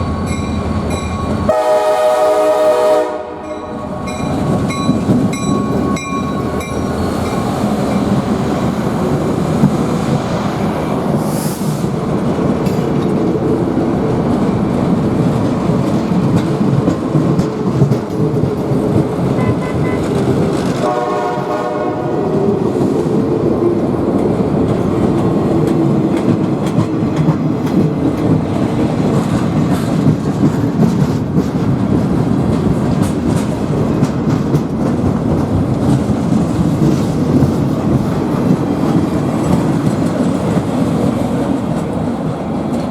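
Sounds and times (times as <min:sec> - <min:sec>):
train wheels rumbling on rails: 0:00.0 - 0:42.9
train horn: 0:01.5 - 0:04.0, 0:19.4 - 0:20.2, 0:20.8 - 0:22.4
clickety-clack over rail joints: 0:03.1 - 0:42.9.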